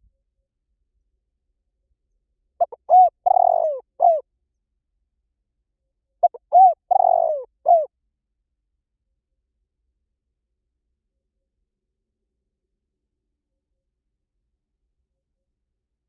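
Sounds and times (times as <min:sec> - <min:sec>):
dove cooing: 0:02.6 - 0:04.2, 0:06.2 - 0:07.9.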